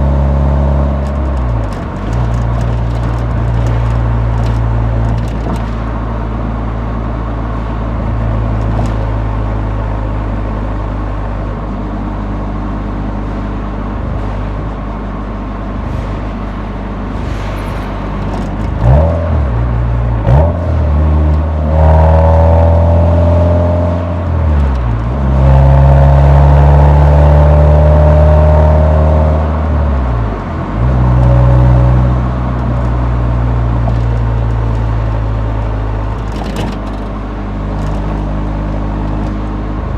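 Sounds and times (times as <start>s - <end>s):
car exhaust revving: 13.2s - 24.3s.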